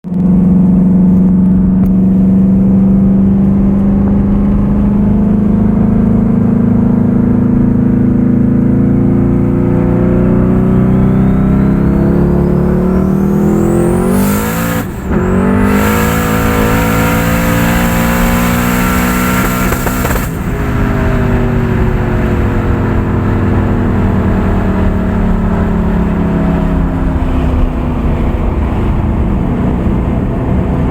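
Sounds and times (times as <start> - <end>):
engine revving at full throttle: 1.8 - 30.9
turbo whistle: 10.4 - 16.9.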